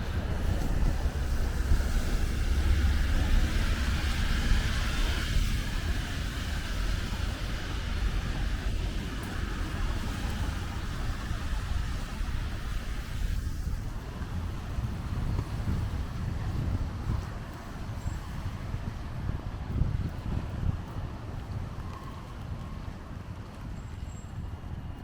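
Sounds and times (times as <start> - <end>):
rain hissing: 0.0 - 18.9
tyres on wet road: 0.0 - 25.0
wind rumble on microphone: 0.0 - 25.0.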